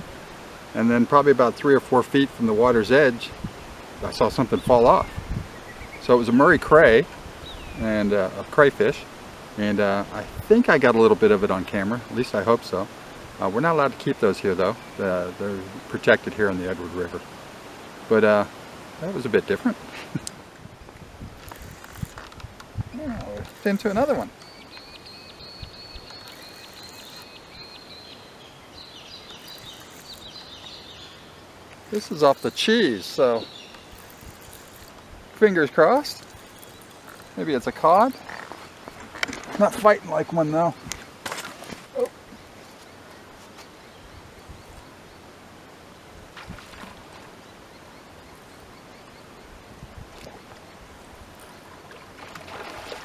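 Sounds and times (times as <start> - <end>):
steady outdoor hiss: 0.0 - 53.0
small bird chirping: 4.4 - 6.1, 22.8 - 35.0, 36.0 - 38.8.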